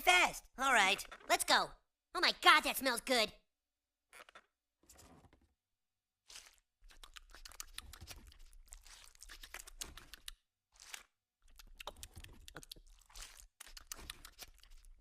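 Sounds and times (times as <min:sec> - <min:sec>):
chicken skin crunching: 0:06.3 - 0:15.0.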